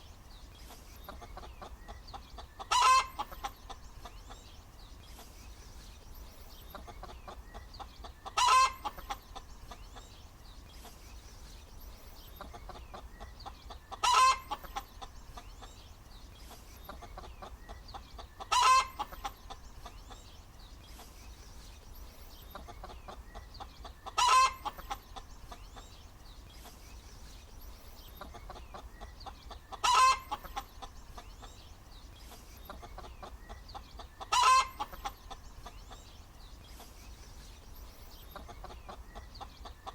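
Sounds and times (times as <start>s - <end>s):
hen clucking: 1.0s - 4.5s, 6.6s - 10.1s, 12.3s - 15.8s, 16.5s - 20.3s, 22.4s - 26.0s, 28.0s - 31.7s, 32.3s - 36.1s, 38.2s - 39.9s.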